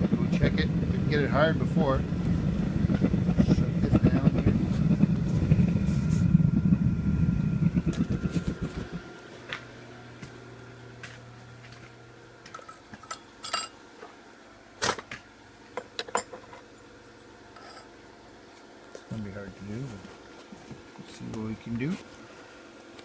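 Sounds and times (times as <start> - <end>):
forge blower pulsing hum: 0.0 - 23.0.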